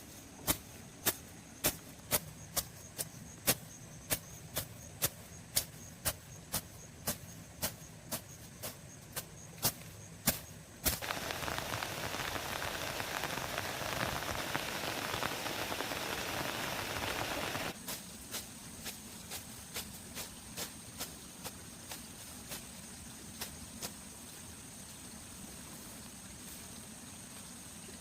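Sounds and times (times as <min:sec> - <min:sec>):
heavy rain falling: 0:11.0 - 0:17.8.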